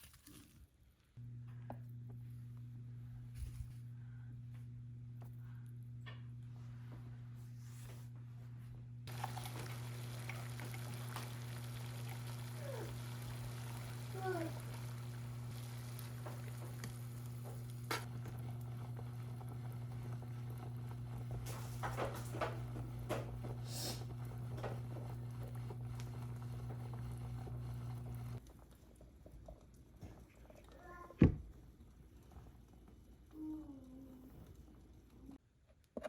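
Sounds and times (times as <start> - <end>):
low electric hum: 0.9 - 28.7.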